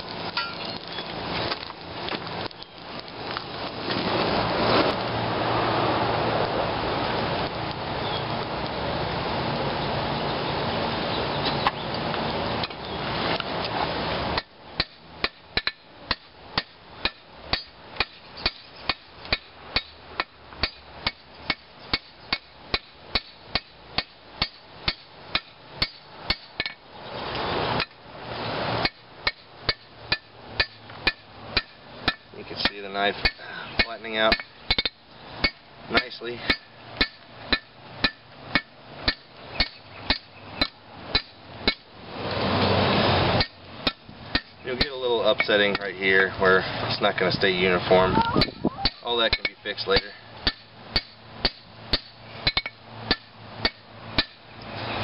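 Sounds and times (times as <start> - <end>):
steady rushing noise: 0.0 - 55.0
hammer striking metal on anvil: 14.4 - 26.8, 28.8 - 41.9, 43.4 - 45.9, 48.4 - 54.4.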